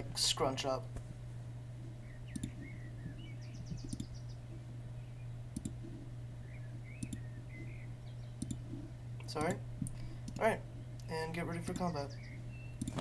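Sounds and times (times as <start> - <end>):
low electrical hum: 0.0 - 13.0
computer mouse clicks: 2.4 - 2.6, 3.8 - 4.1, 5.6 - 5.8, 7.0 - 7.2, 8.4 - 8.6, 12.8 - 13.0.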